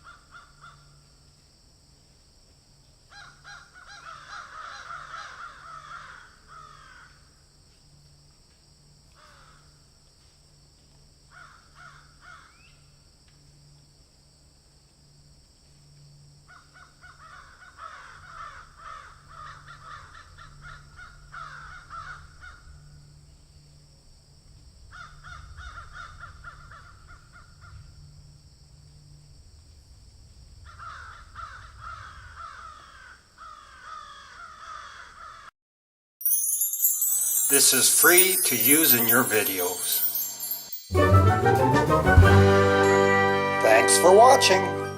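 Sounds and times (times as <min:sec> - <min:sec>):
crows cawing: 0:00.0 - 0:01.0, 0:03.1 - 0:07.3, 0:09.2 - 0:09.8, 0:11.3 - 0:12.6, 0:16.5 - 0:22.7, 0:24.9 - 0:27.8, 0:30.7 - 0:35.5.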